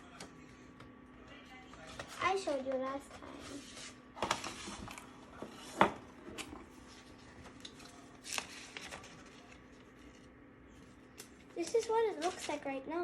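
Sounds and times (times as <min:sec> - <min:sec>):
packaging rustling: 0:06.5 - 0:10.3.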